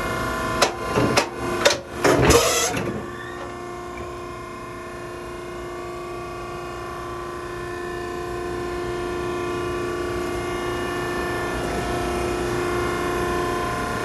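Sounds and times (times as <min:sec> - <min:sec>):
hydraulic pump humming: 0:00.0 - 0:04.8
rattling clatter: 0:00.6 - 0:04.1.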